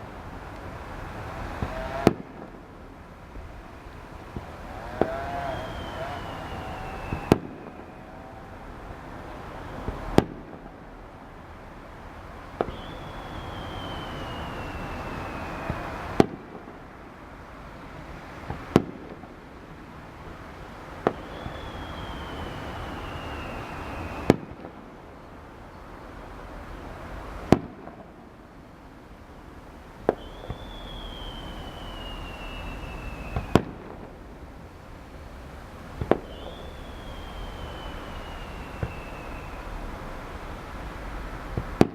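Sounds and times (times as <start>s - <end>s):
fireworks bangs: 0.0s - 17.0s, 18.0s - 25.3s, 26.2s - 28.4s, 29.9s - 41.9s
falling firework whistle: 1.1s - 2.6s, 3.4s - 11.0s, 12.6s - 16.7s, 20.8s - 25.0s, 30.0s - 34.2s, 36.0s - 41.9s.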